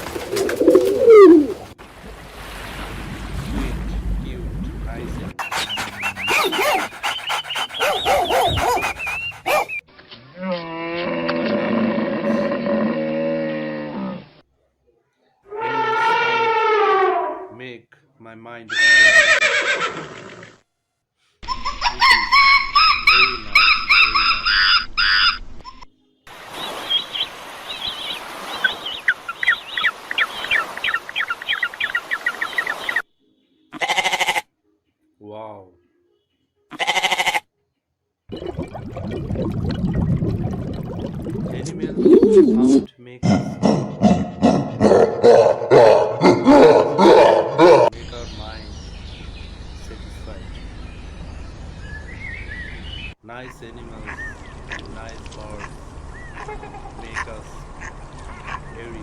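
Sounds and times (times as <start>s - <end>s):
high arching animal cries: 0.6s - 1.6s, 5.4s - 11.0s, 15.5s - 17.5s, 18.7s - 20.6s, 21.4s - 25.9s, 33.7s - 34.5s, 36.7s - 37.5s, 54.0s - 58.9s
long low animal call: 0.7s - 1.6s, 5.4s - 14.2s, 15.5s - 17.6s
birds chirping: 3.9s - 9.9s, 21.4s - 33.8s, 41.1s - 42.9s, 43.5s - 59.0s.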